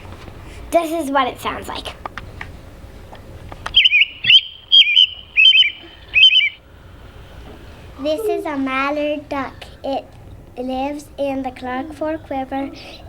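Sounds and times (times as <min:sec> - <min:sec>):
robin song: 0:03.8 - 0:06.7.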